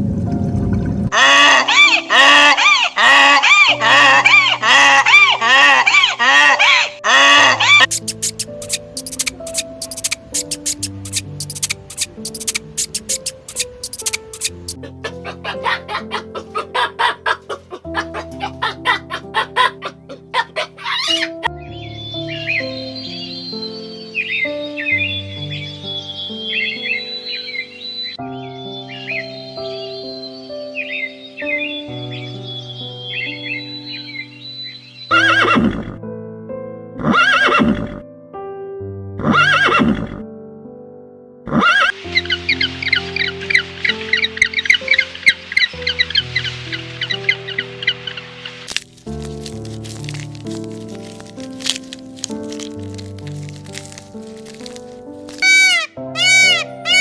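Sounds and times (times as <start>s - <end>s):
background music with held notes: 0.0s - 57.0s
horse neighing: 1.1s - 7.9s, 35.1s - 36.0s, 37.0s - 38.0s, 39.2s - 40.2s, 41.5s - 42.0s
chicken clucking rapidly: 1.2s - 21.3s.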